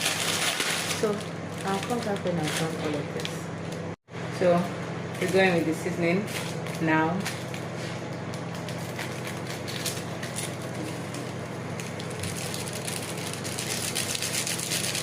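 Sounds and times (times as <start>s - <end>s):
plastic sachets crackling: 0.0s - 3.4s, 8.3s - 15.0s
steady low hum: 0.0s - 15.0s.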